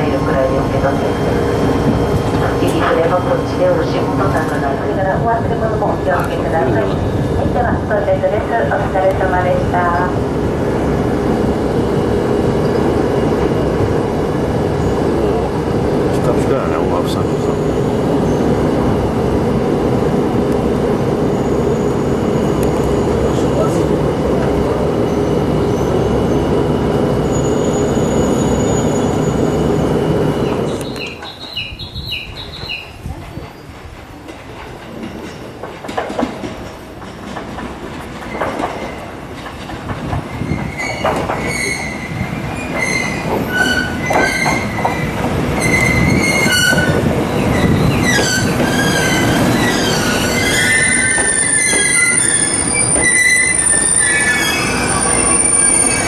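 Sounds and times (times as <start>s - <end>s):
train wheels squealing on rails: 11.6s - 13.8s, 21.2s - 33.8s, 40.0s - 56.0s.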